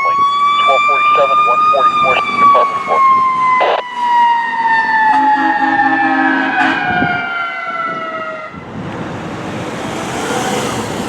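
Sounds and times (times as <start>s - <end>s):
fire engine siren winding down: 0.0s - 8.8s
traffic noise: 0.0s - 11.0s.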